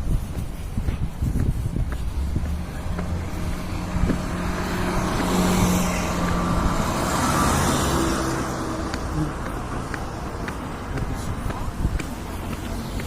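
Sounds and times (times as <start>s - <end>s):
vehicle driving past: 2.2s - 10.6s.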